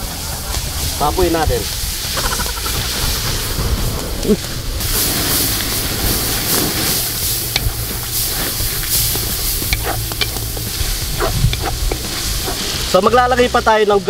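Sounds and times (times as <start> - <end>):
food sizzling in oil in a wok: 0.0 - 14.0
wooden spatula stirring: 2.7 - 13.1.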